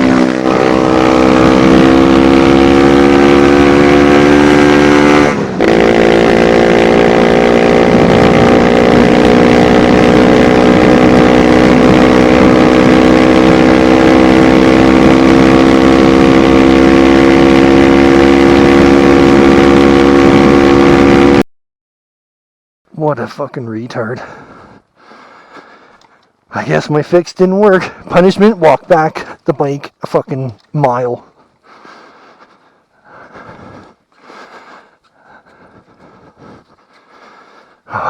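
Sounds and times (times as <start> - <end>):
dirt bike engine revving: 0.0 - 21.4, 26.6 - 31.3.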